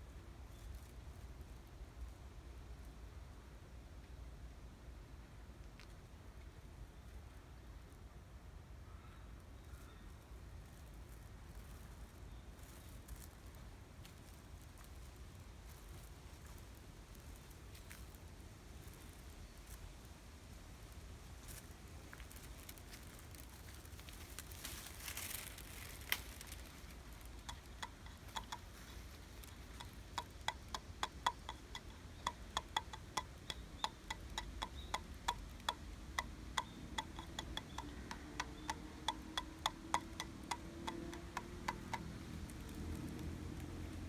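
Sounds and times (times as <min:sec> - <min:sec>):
bamboo stems knocking: 0:22.1 - 0:44.0.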